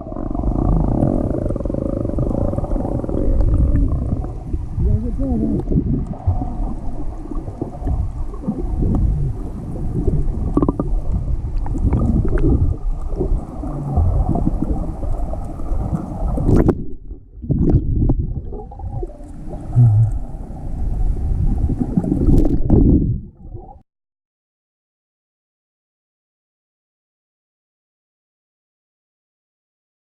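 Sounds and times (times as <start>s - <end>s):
low rumbling microphone noise: 0.0s - 23.8s.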